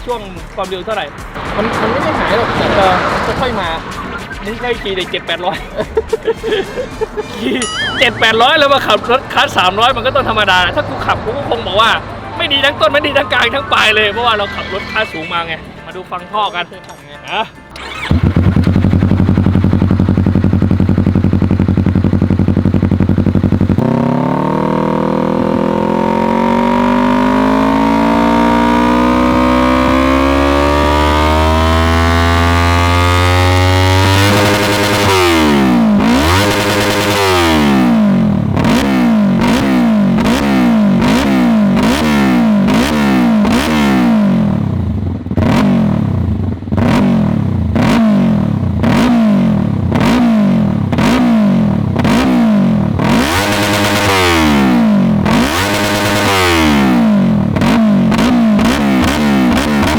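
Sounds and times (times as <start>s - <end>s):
motorcycle engine revving: 17.7s - 59.9s.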